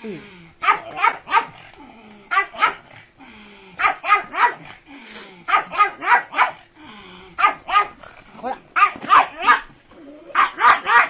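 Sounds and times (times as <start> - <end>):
dog barking: 0.6 - 1.6, 2.3 - 2.9, 3.8 - 4.7, 5.5 - 6.6, 7.4 - 8.0, 8.8 - 9.7, 10.4 - 11.0.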